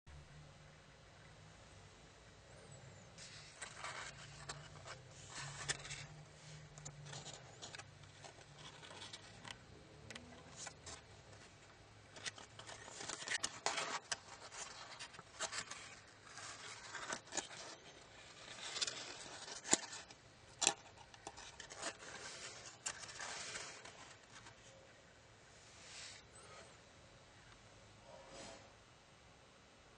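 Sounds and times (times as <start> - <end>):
foil paper rustling and crackling: 12.1 - 24.6.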